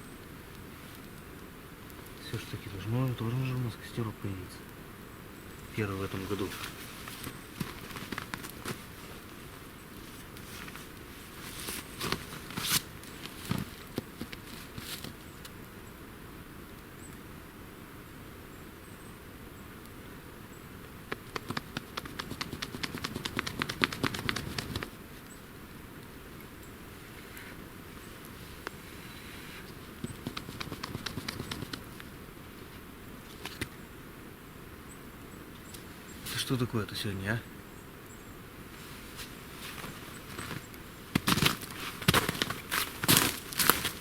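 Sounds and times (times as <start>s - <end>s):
twigs rustling: 5.5s - 15.6s, 27.0s - 33.8s, 38.7s - 44.0s
twigs snapping: 6.2s - 8.9s, 39.8s - 44.0s.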